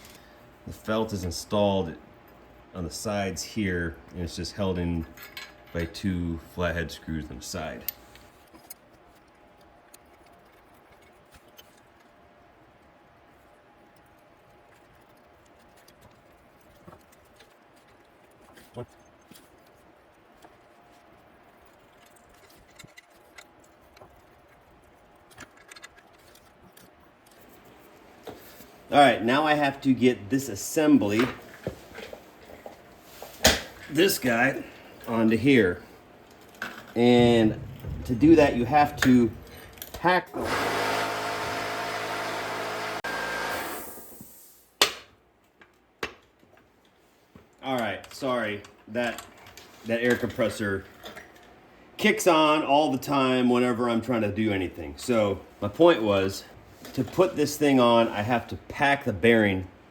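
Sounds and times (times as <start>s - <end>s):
small metal parts clicking: 21.5s - 27.4s
air compressor motor hum: 37.3s - 44.4s.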